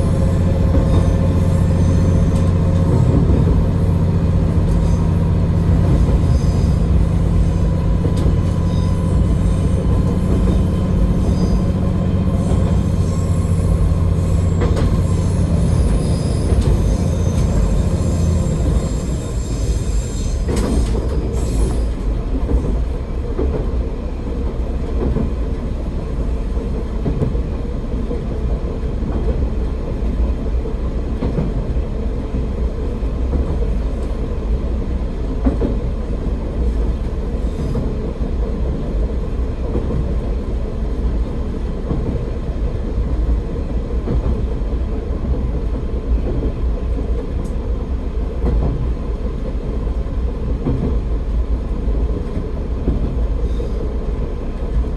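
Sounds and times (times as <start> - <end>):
wheel rumble on rails: 0.0 - 21.4
railcar engine drone: 0.0 - 54.9.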